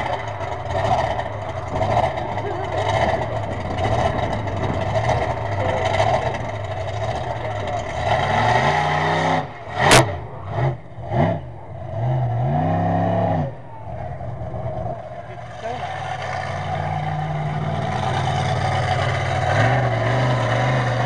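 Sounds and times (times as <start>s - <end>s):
monster truck engine revving: 0.0s - 21.0s
loud bang: 0.9s - 8.4s.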